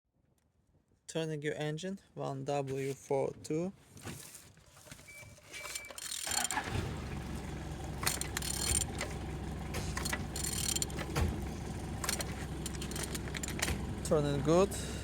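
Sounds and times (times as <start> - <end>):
diesel engine cranking: 5.0 - 15.0
metallic clicks and rattles: 5.6 - 6.6, 8.0 - 9.2, 9.8 - 11.3, 12.0 - 13.9.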